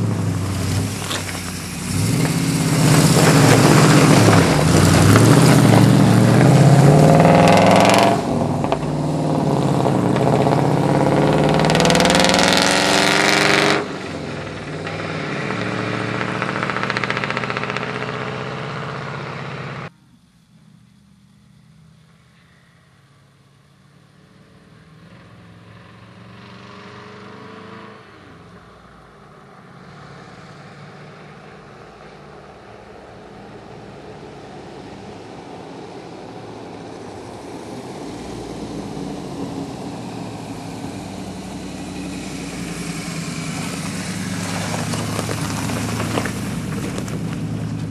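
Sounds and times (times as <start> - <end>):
engine running: 0.0 - 22.2, 32.0 - 47.9.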